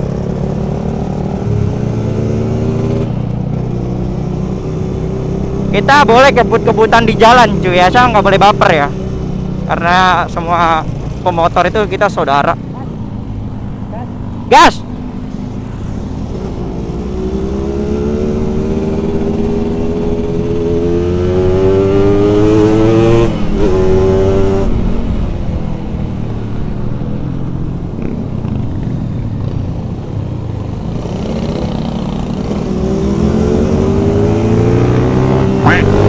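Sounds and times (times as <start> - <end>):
two-stroke engine revving: 16.1 - 24.7, 31.0 - 36.0.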